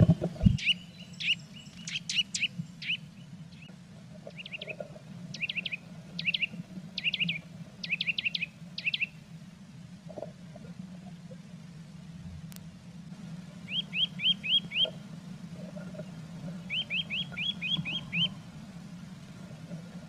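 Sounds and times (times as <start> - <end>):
faint low hum: 0.0 - 20.0
bird chirping calls: 0.5 - 3.7, 4.3 - 9.1, 13.7 - 15.0, 16.6 - 18.4.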